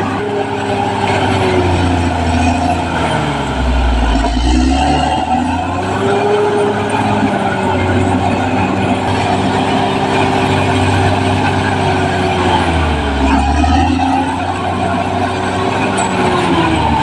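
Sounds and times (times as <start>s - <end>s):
bulldozer diesel engine running: 0.0s - 17.0s.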